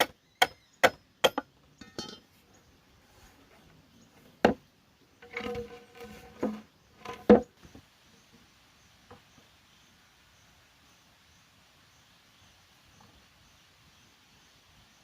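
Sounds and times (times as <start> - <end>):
sharp knocks on bamboo: 0.0 - 1.5, 4.4 - 4.6.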